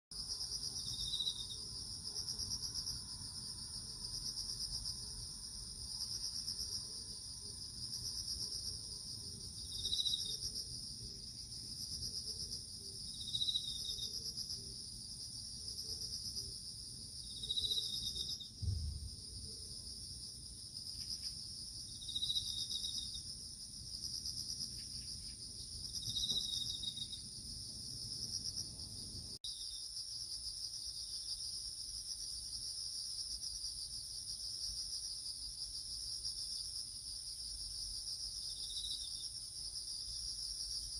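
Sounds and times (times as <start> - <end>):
cricket chirping: 0.1 - 40.9
cricket trilling: 0.2 - 32.3
low bump: 18.6 - 19.5.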